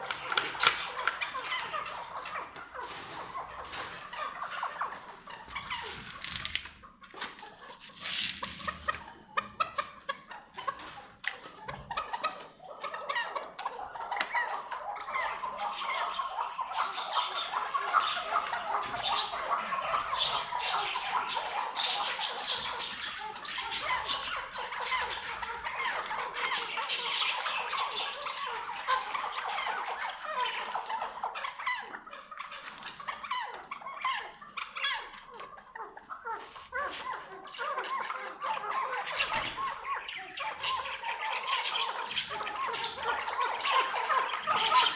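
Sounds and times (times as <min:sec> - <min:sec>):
partridge chattering calls: 0:12.0 - 0:44.9.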